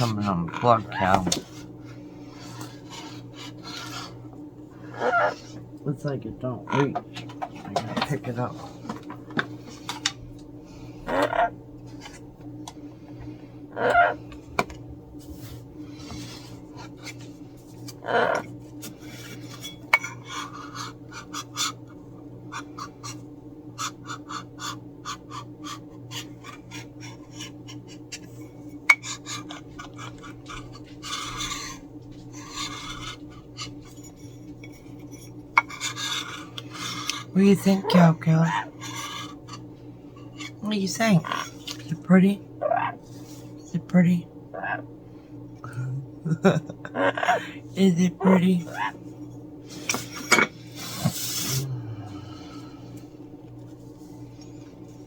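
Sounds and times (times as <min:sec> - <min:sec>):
scratching and rubbing on hard surface: 0:00.0 - 0:04.2, 0:29.0 - 0:37.9, 0:49.7 - 0:51.6
steady low hum: 0:00.0 - 0:55.0.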